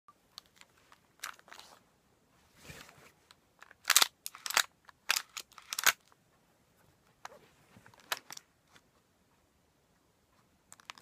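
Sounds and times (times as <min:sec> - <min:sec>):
soft sliding sound: 0:01.5 - 0:03.3, 0:06.8 - 0:08.0.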